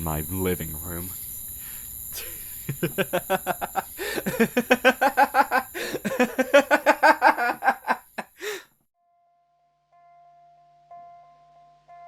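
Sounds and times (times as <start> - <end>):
insects chirring: 0.0 - 8.6
man laughing rapidly: 2.2 - 8.6.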